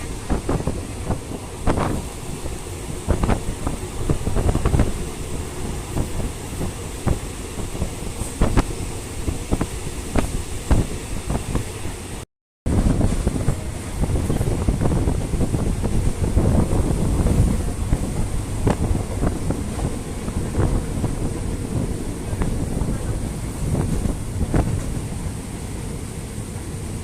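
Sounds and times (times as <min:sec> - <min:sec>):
train wheels rumbling on track: 0:00.0 - 0:27.0
wind buffeting microphone: 0:00.0 - 0:27.0.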